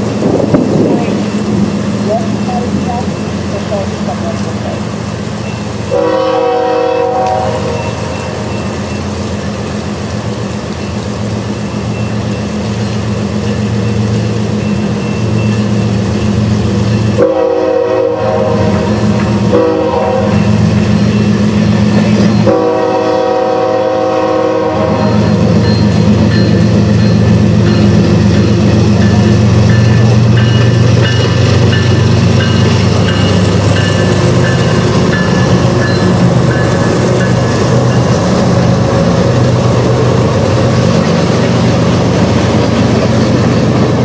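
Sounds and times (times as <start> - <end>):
locomotive air horn blasts: 5.9 - 8.4, 17.2 - 20.6, 22.4 - 25.6.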